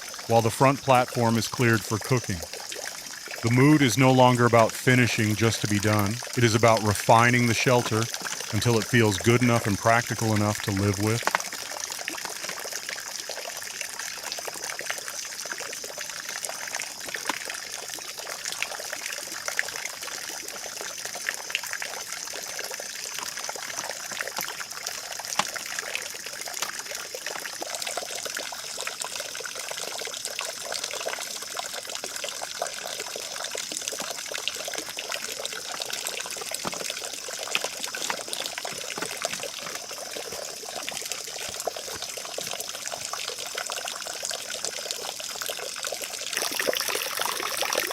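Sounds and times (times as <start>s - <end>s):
trickling water: 0.0s - 47.9s.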